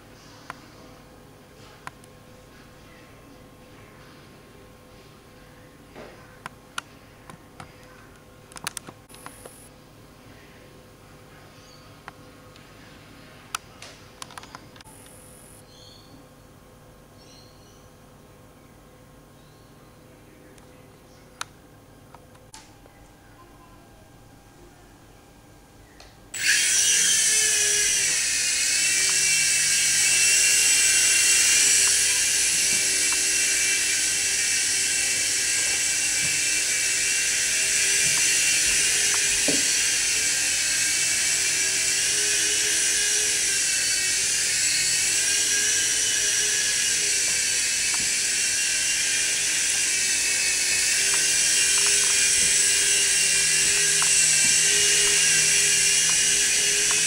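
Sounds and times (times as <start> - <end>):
toy helicopter motor whining: 26.3 - 57.0.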